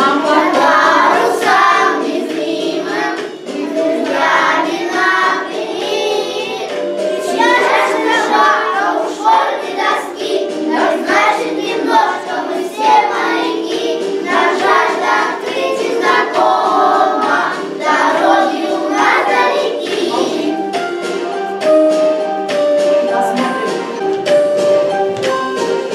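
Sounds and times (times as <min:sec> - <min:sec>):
children singing as a choir: 0:00.0 - 0:21.6
backing track: 0:00.0 - 0:25.9.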